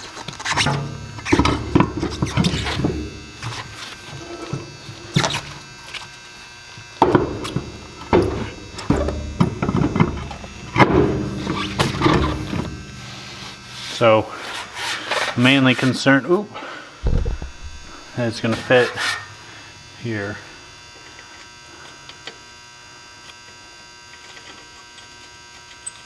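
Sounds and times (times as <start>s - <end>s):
low hum: 17.0s - 18.4s
metal parts knocking and scraping: 17.0s - 19.3s.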